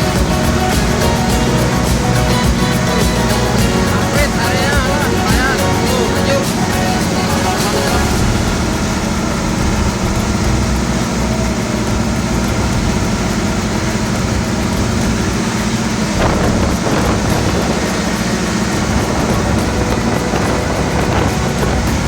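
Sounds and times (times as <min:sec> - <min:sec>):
boat engine running steadily: 0:00.0 - 0:22.0.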